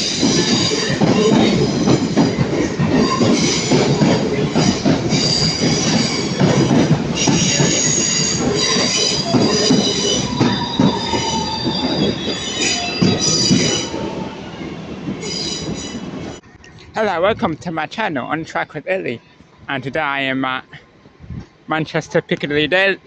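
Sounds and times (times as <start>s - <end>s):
train wheels squealing: 0.0s - 16.4s
wheels rumbling on rail: 0.0s - 20.0s.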